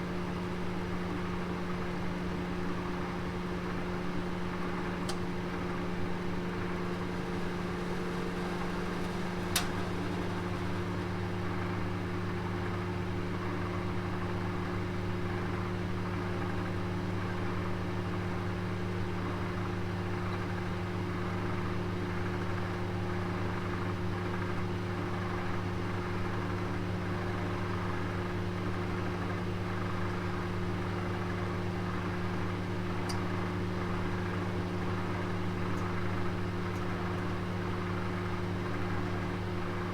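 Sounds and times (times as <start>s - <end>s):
electric oven humming: 0.0s - 39.9s
oven click: 4.6s - 11.8s.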